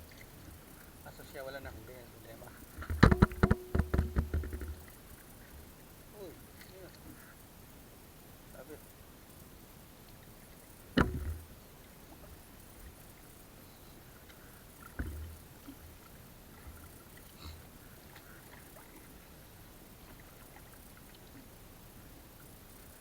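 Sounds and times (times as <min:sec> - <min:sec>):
wood knocking against a boat: 0:02.7 - 0:05.0, 0:11.0 - 0:11.5, 0:14.9 - 0:15.4.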